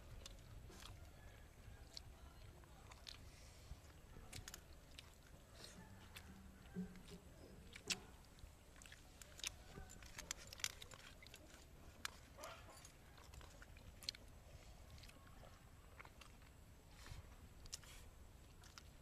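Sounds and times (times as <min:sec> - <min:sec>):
people chewing: 0:00.0 - 0:19.0.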